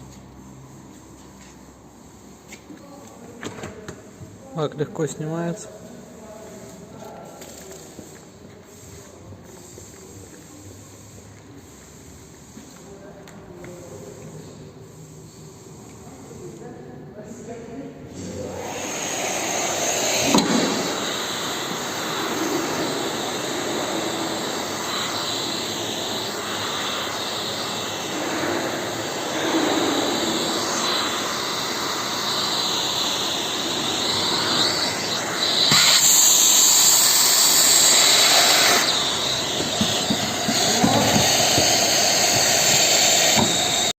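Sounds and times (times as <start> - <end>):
vacuum suction rushing: 18.2 - 43.9.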